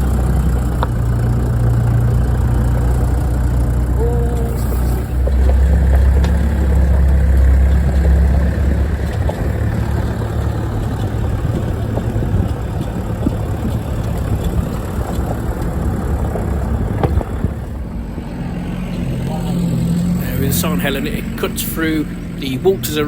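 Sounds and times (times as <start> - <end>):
engine running at low revs: 0.0 - 23.0
tyres crunching on stones: 4.4 - 23.0
small stones ticking: 5.0 - 17.7.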